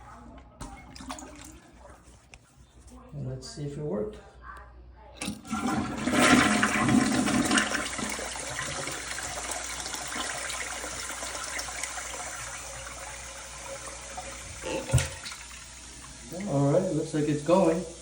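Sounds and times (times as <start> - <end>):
toilet flushing: 5.2 - 18.0.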